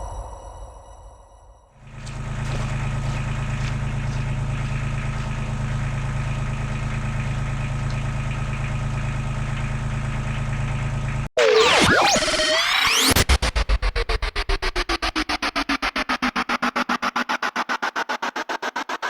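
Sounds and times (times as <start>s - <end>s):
diesel engine idling: 1.8s - 11.3s.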